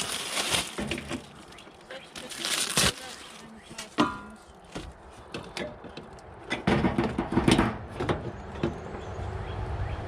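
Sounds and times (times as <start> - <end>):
tools and car parts knocking: 4.0 - 9.0.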